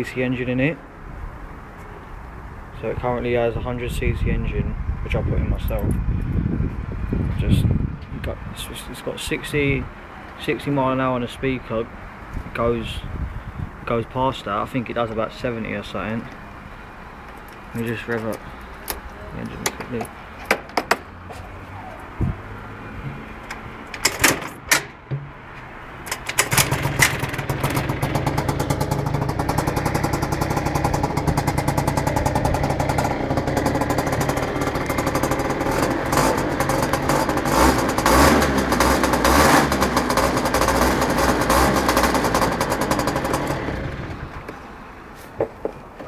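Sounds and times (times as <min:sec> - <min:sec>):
clicks and knocks: 0:19.6 - 0:21.1, 0:23.0 - 0:27.4
scooter engine revving: 0:26.0 - 0:44.5.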